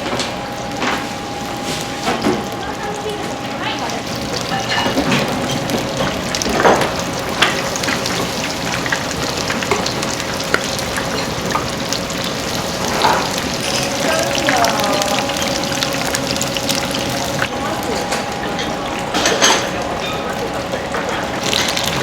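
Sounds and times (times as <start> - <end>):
food sizzling in hot oil: 3.8 - 18.0
faint steady hum: 13.6 - 21.6.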